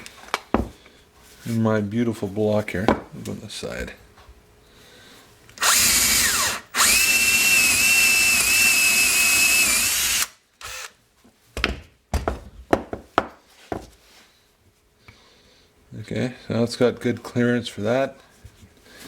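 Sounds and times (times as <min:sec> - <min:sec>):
electric drill whining: 0:05.6 - 0:11.0.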